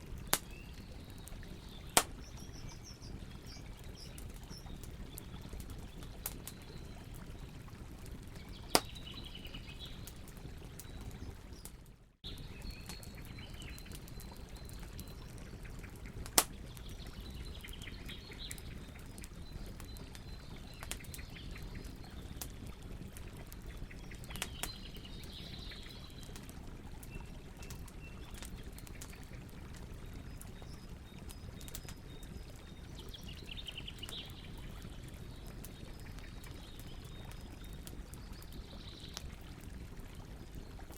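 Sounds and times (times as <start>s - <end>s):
birds chirping faintly: 0.0s - 40.9s
campfire crackling: 0.0s - 40.9s
loud wood snap: 2.0s - 2.2s, 16.3s - 16.6s.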